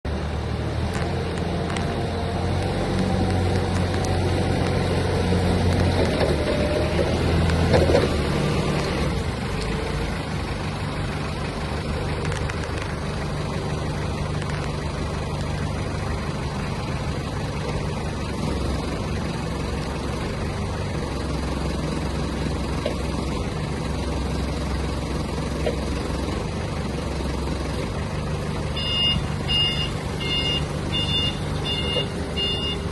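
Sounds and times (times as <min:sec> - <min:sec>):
diesel forklift engine idling: 0:00.1 - 0:32.9
reversing alarm beeping: 0:28.7 - 0:32.9.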